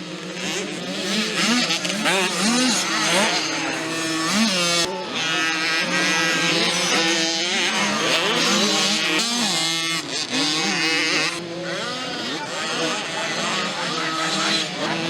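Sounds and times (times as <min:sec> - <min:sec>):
mini motocross bikes racing: 0:00.0 - 0:15.0.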